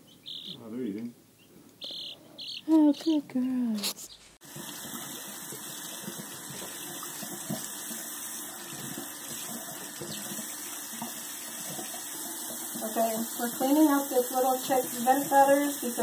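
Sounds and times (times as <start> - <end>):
faucet running water: 4.4 - 16.0.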